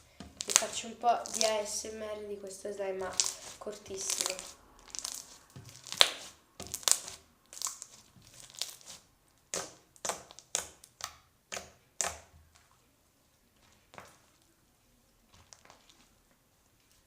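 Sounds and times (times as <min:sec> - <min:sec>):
slime popping and crackling: 0:00.0 - 0:01.9, 0:03.0 - 0:12.3, 0:15.3 - 0:16.2.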